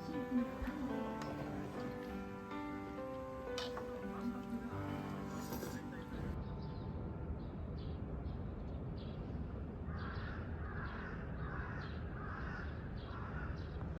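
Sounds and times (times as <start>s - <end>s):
crow cawing: 9.9s - 13.7s.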